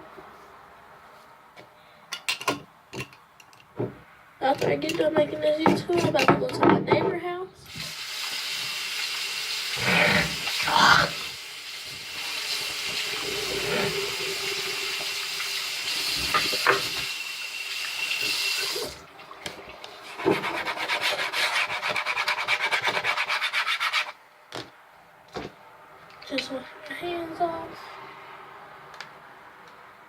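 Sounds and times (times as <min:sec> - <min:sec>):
tap water running: 0:07.7 - 0:22.5.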